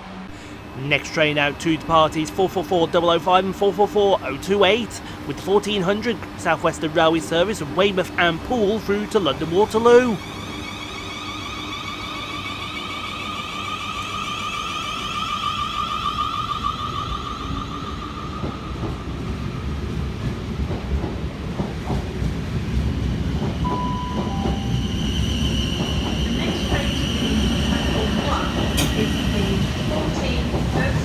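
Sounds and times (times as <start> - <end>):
train rumbling: 0.0 - 31.0
train traction motor whine: 0.0 - 31.0.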